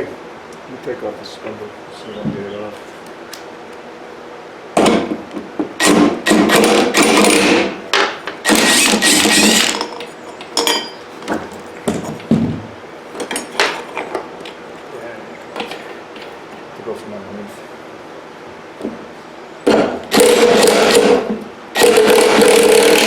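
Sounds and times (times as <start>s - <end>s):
impact wrench bursts: 5.8s - 7.8s, 8.4s - 9.9s, 19.7s - 23.0s.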